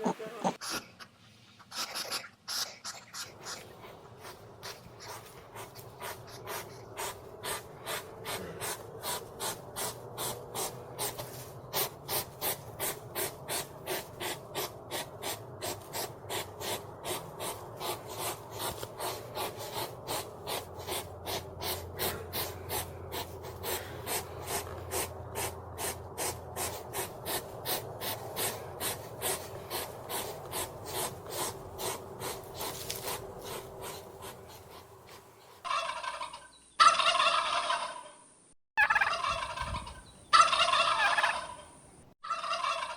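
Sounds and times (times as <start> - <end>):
animal rapid breathing or sniffing: 1.6 - 35.6.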